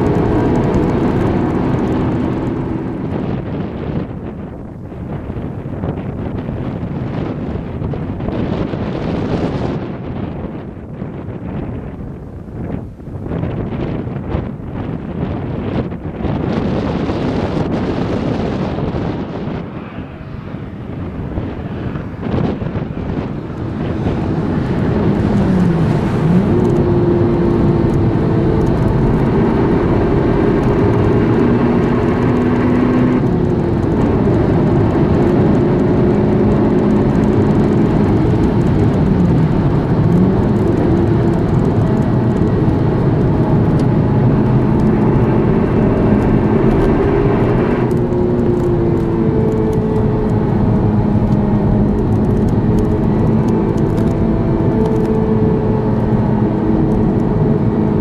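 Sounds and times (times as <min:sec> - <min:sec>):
car engine running: 0:00.0 - 0:08.7, 0:20.7 - 0:58.0
road and tyre noise: 0:00.0 - 0:58.0.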